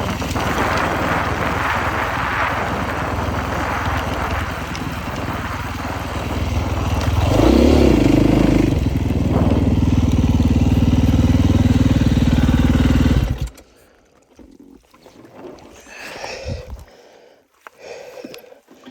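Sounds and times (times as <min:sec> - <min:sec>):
dirt bike engine revving: 0:00.0 - 0:13.6.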